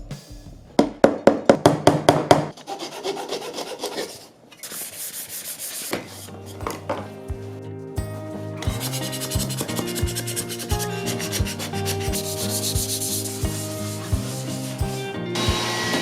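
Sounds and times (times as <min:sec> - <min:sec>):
music: 0:00.0 - 0:01.0, 0:06.1 - 0:16.0
rubbing strokes on wooden board: 0:11.1 - 0:15.0.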